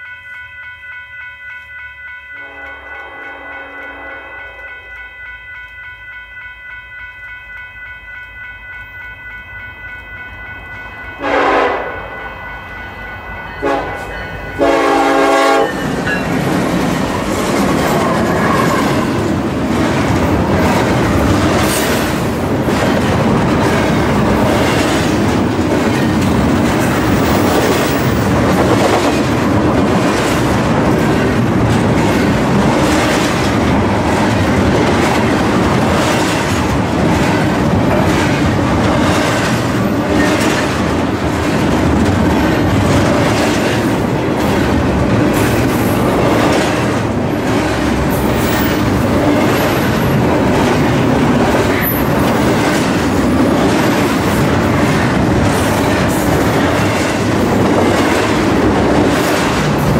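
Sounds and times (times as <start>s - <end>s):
locomotive horn blasts: 2.4s - 4.9s, 11.2s - 12.2s, 13.6s - 15.9s
train wheels clattering: 13.6s - 59.9s.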